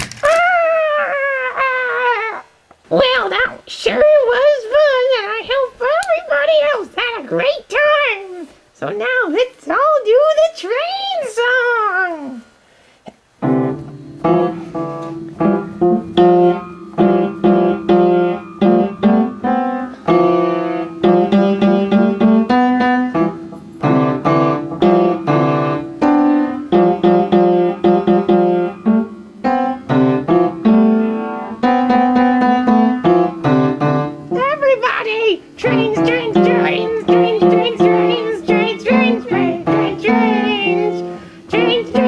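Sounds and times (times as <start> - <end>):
electric piano chords and melody: 13.4 - 34.4.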